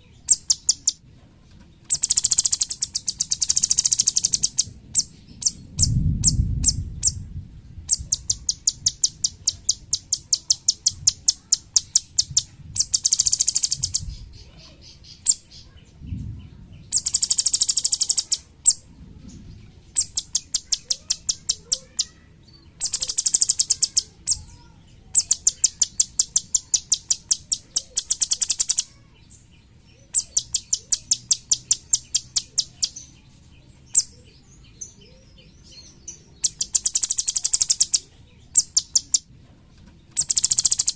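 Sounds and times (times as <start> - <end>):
songbird calling: 0.0 - 1.0, 1.8 - 7.2, 7.9 - 39.3, 40.1 - 40.9
bird trills: 0.2 - 1.0, 1.9 - 7.2, 7.9 - 15.8, 16.9 - 18.8, 20.0 - 29.0, 30.0 - 33.1, 34.8 - 39.3, 40.1 - 40.9.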